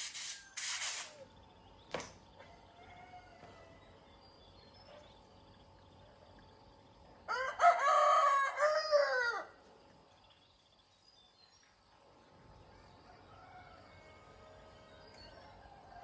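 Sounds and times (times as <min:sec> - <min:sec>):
rooster crowing: 0:02.7 - 0:03.8, 0:07.3 - 0:09.6, 0:13.1 - 0:14.7.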